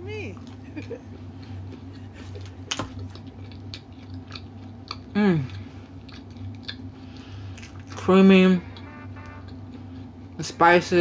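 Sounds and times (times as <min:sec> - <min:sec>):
chewing pizza: 0:00.3 - 0:10.4
person humming: 0:08.7 - 0:09.5.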